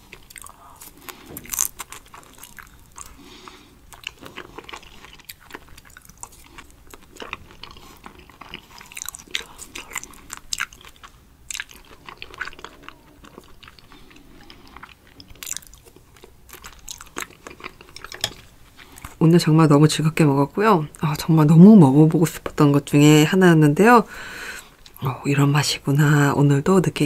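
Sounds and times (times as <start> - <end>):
wet chewing clicks and smacks: 0.1 - 3.2, 3.9 - 18.2.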